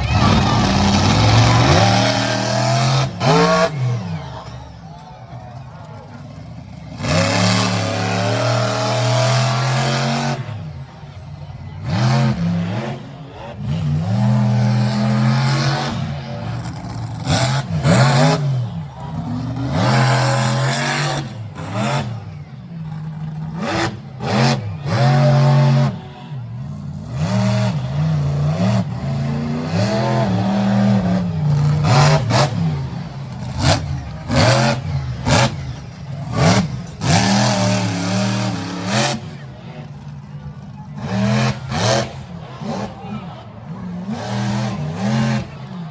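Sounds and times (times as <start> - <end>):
truck engine revving hard: 0.0 - 45.9.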